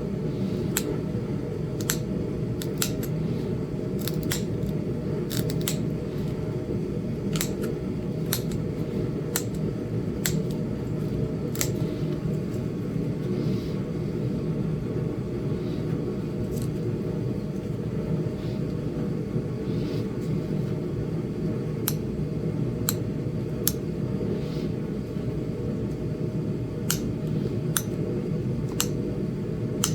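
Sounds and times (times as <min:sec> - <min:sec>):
steady low hum: 0:00.0 - 0:29.9
stone flakes snapping off: 0:04.0 - 0:05.9.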